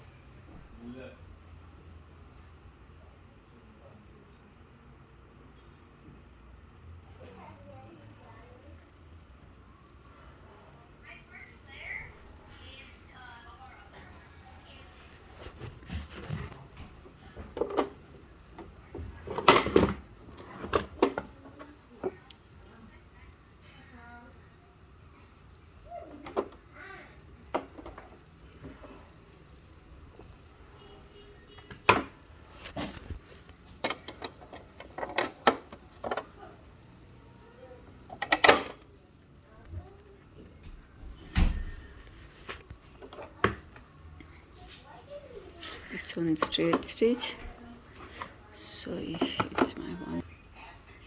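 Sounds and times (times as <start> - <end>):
hard objects knocking and clicking: 15.4 - 22.2, 31.7 - 36.5.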